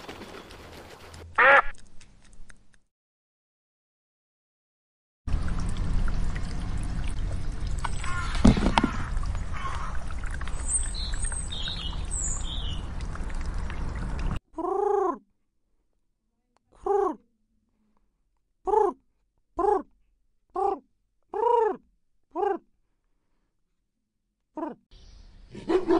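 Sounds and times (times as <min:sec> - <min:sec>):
small birds chirping: 0:07.5 - 0:09.9, 0:10.5 - 0:12.9.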